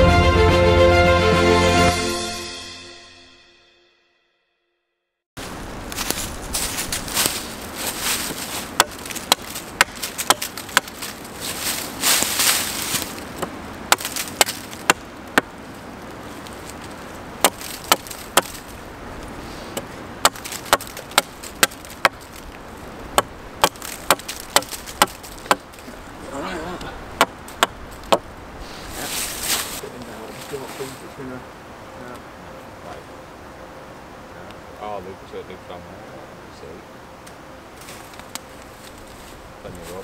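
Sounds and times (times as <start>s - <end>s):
scraping rustle: 5.4s - 23.0s, 27.4s - 31.4s, 37.8s - 40.0s
axe chopping wood: 8.2s - 11.1s, 13.4s - 15.6s, 17.4s - 18.6s, 19.7s - 22.3s, 23.2s - 25.8s, 27.2s - 28.3s.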